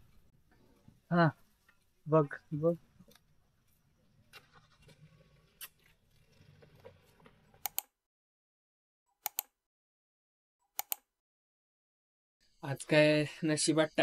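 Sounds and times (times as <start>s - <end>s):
small scattered clicks: 7.6s - 7.9s, 9.2s - 9.5s, 10.8s - 11.1s.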